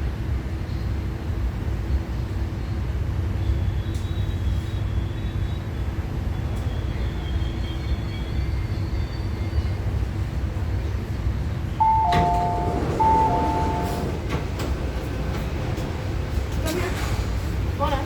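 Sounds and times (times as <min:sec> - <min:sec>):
train rumbling: 0:00.0 - 0:18.0
two-note door chime: 0:11.8 - 0:14.1.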